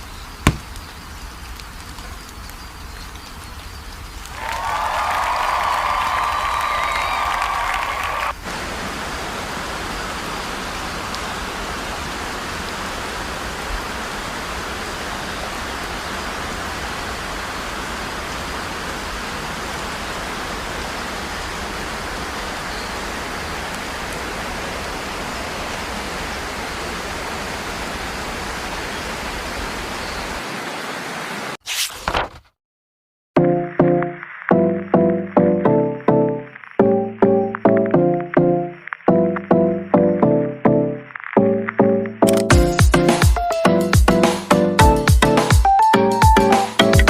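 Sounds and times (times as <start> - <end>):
steady rushing hiss: 0.0 - 31.6, 34.0 - 37.6.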